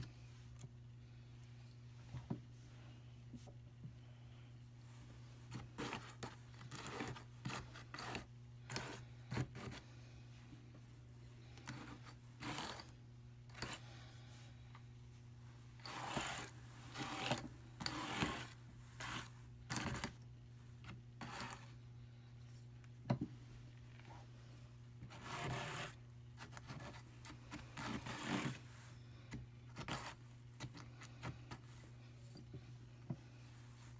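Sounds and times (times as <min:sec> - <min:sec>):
wool scraping on drum carder: 0:25.1 - 0:26.0.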